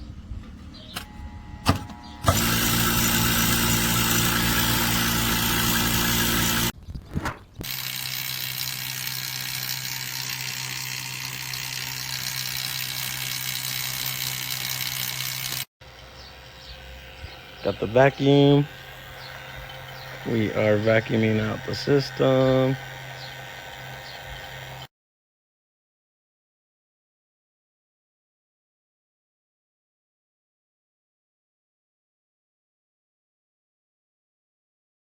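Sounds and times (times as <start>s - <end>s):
vacuum pump humming: 0.4s - 6.8s, 7.6s - 24.9s.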